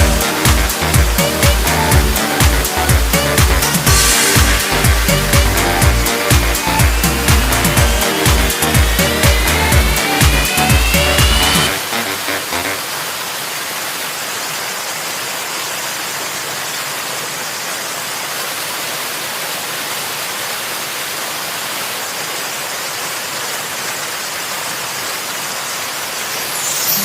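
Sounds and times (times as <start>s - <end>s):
background music: 0.0s - 12.8s
running water rushing: 0.0s - 27.0s.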